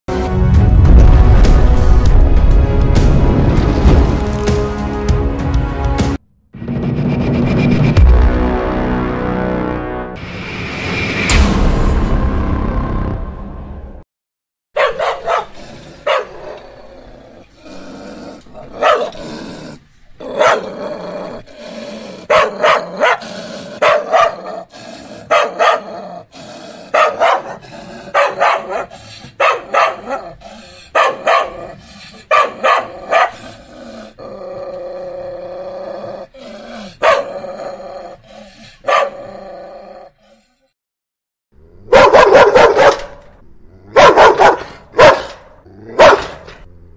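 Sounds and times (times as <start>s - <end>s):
dog barking: 14.8s - 16.6s, 18.7s - 19.2s, 20.3s - 20.8s, 22.2s - 26.0s, 26.9s - 33.4s, 37.0s - 37.4s, 38.8s - 39.3s, 41.9s - 43.2s, 43.9s - 46.6s
dog growling: 15.2s - 40.6s.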